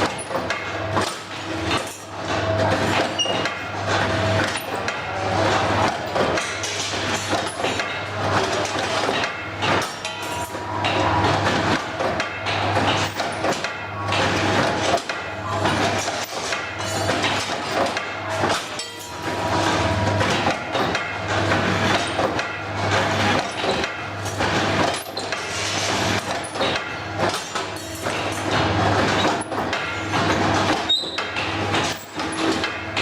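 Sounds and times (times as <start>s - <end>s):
metallic clanks and knocks: 6.1s - 14.3s, 14.9s - 33.0s.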